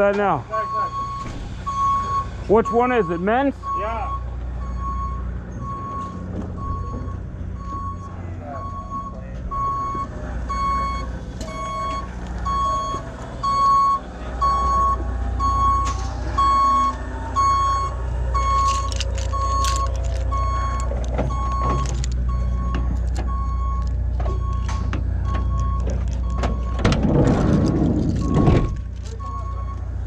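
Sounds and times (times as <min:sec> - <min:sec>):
engine running: 0:00.0 - 0:30.0
reversing alarm beeping: 0:00.5 - 0:26.9, 0:28.1 - 0:29.9
clanks and knocks: 0:00.9 - 0:02.5, 0:24.0 - 0:29.4.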